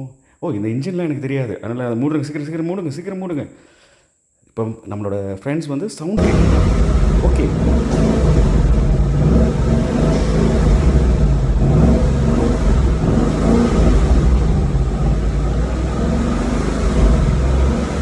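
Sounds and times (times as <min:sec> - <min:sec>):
car engine running: 0:06.2 - 0:18.0.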